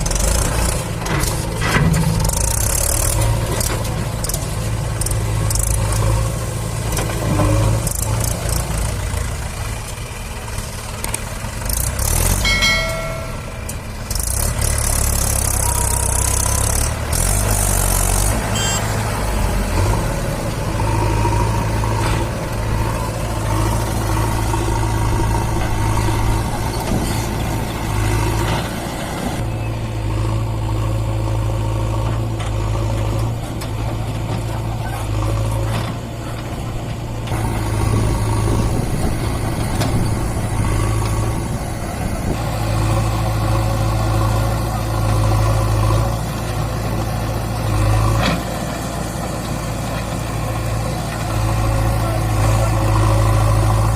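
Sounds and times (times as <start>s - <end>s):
tractor diesel engine running: 0.0s - 53.9s
brief high-pitched tone: 18.5s - 18.8s.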